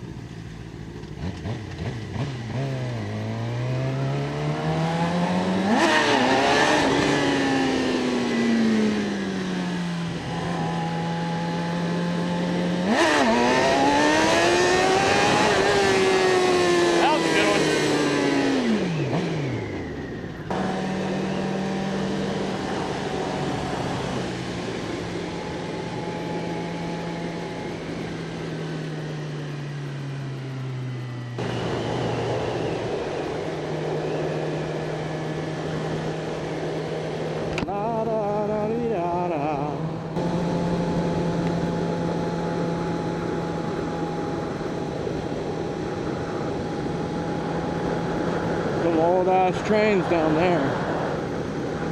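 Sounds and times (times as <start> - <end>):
motorcycle engine cruising: 0.0 - 51.9
wind rush: 31.4 - 37.7, 39.4 - 51.9.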